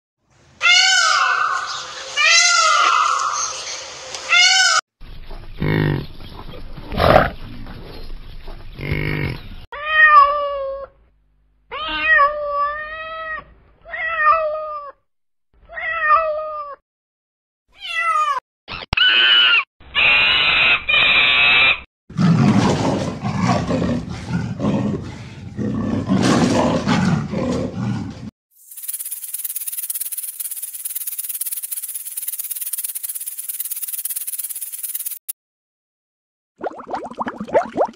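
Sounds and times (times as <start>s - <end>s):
peacock calling: 0.6s - 4.8s
leopard growling: 6.8s - 7.9s, 22.1s - 28.3s
cat meowing: 11.7s - 15.0s, 17.8s - 18.4s.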